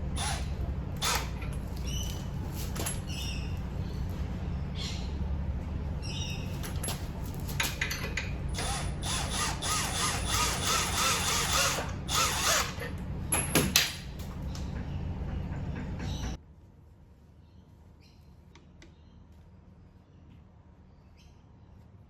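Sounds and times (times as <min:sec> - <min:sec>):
steady low hum: 0:00.0 - 0:22.0
squeaking and rattling: 0:00.1 - 0:04.1, 0:06.0 - 0:13.8.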